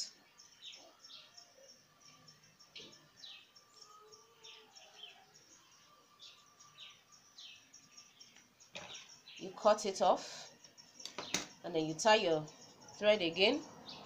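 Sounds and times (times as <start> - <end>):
faint birds chirping: 0.0 - 14.0.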